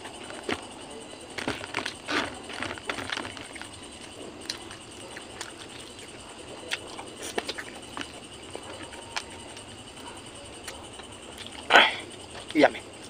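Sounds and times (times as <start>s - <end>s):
chewing and lip-smacking: 0.0s - 13.0s
wet smacks and clicks: 3.5s - 9.7s.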